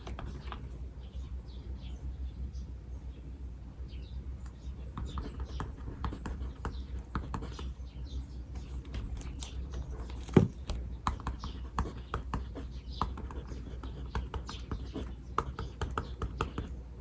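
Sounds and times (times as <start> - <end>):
birds chirping faintly: 0.0 - 17.0
pen scratching on paper: 5.0 - 7.7, 11.1 - 16.7.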